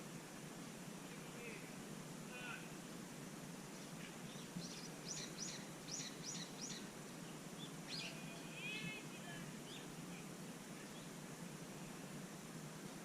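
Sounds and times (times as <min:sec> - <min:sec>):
bird chirping: 0:03.7 - 0:11.2.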